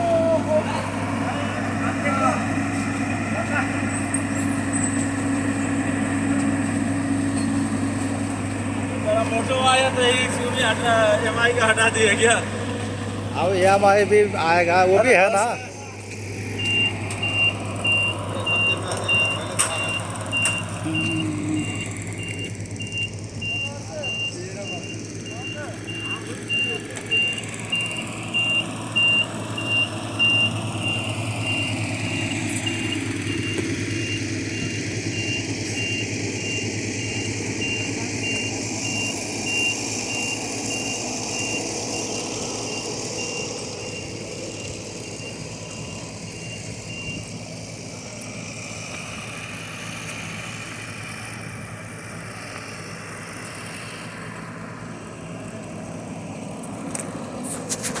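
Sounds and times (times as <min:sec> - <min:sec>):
vehicle engine running: 0:00.0 - 0:58.0
reversing beeper: 0:13.4 - 0:48.6.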